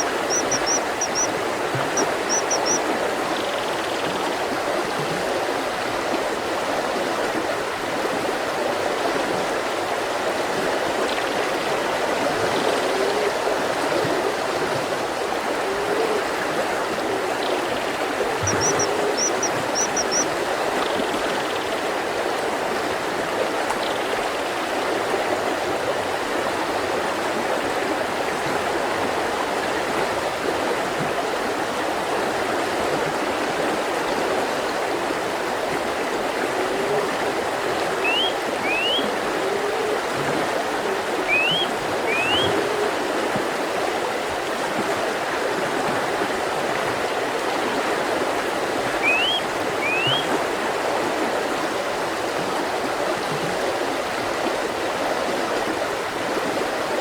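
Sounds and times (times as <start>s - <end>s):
bird chirping: 0.0s - 2.8s, 18.5s - 20.2s, 38.0s - 39.0s, 41.3s - 42.5s, 49.0s - 50.3s
river rushing over rocks: 25.6s - 57.0s.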